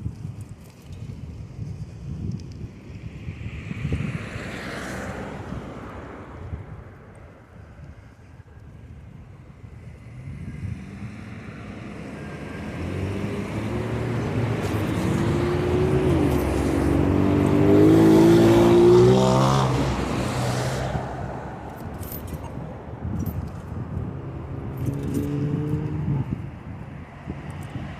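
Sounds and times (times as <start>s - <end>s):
car passing by: 3.4s - 6.7s, 9.8s - 22.9s.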